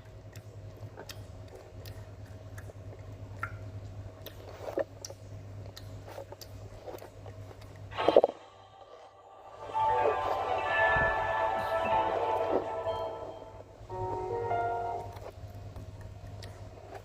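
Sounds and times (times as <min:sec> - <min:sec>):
person chewing candy: 0:00.0 - 0:07.9
steady low hum: 0:00.0 - 0:17.0.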